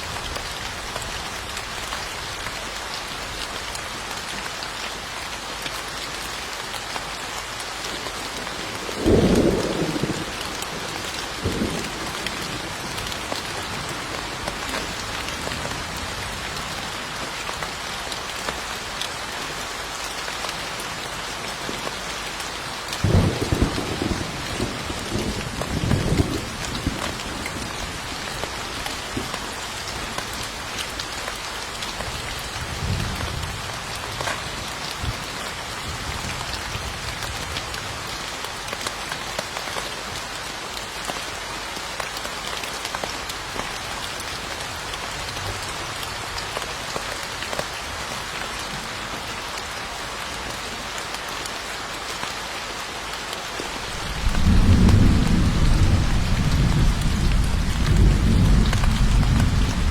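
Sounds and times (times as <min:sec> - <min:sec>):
heavy rain hissing and pattering: 0:00.0 - 0:59.9
thunder rumbling: 0:23.0 - 0:27.8, 0:53.8 - 0:59.9.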